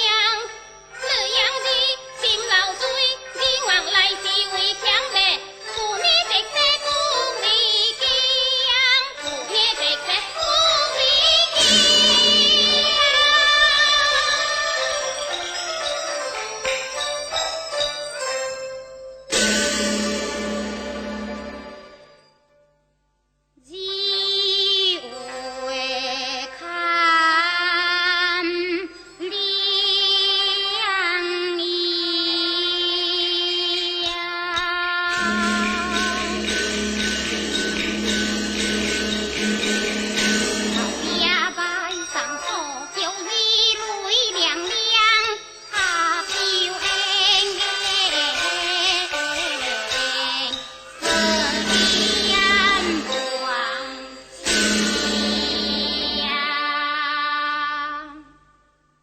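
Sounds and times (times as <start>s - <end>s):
opera music ensemble: 0.0s - 22.3s, 35.1s - 43.8s, 45.6s - 56.7s
high wavering melody: 9.3s - 16.9s, 19.3s - 22.3s, 35.1s - 46.8s, 49.7s - 56.6s.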